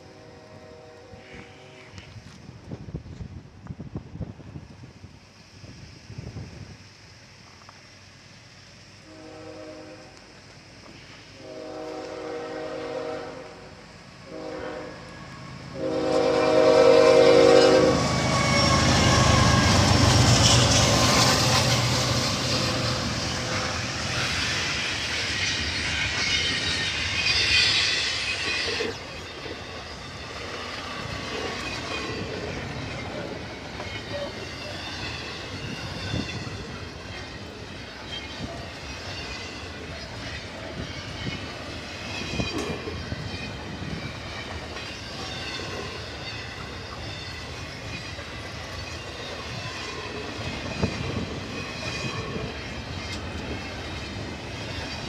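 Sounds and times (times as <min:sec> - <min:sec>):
locomotive air horn blasts: 0:00.0 - 0:02.1, 0:09.0 - 0:10.2, 0:11.4 - 0:19.7
train wheels rushing on rails: 0:00.0 - 0:55.0
locomotive engine rumble: 0:12.8 - 0:55.0.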